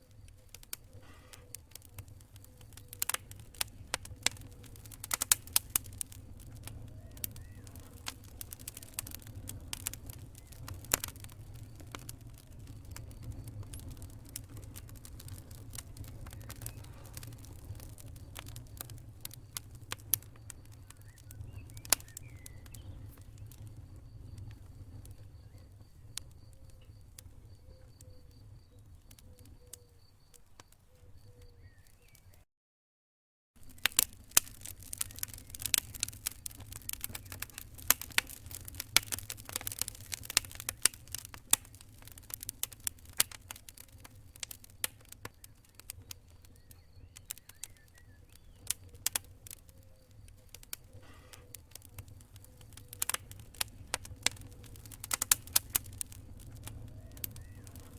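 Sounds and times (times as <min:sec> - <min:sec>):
campfire crackling: 0:00.0 - 0:32.4, 0:33.6 - 0:57.9
faint high-pitched chirping: 0:05.9 - 0:32.5, 0:43.4 - 0:54.8.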